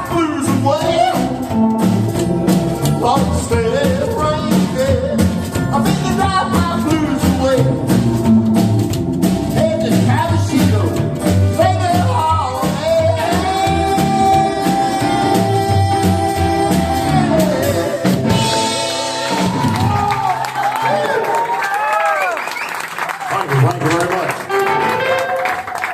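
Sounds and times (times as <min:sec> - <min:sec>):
live country rock band: 0:00.0 - 0:21.5
lead singer singing: 0:02.9 - 0:08.0, 0:09.5 - 0:18.8.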